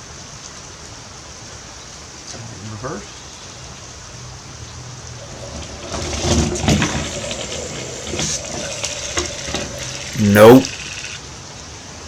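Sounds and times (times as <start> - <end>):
toy steam locomotive hissing: 5.2 - 11.3.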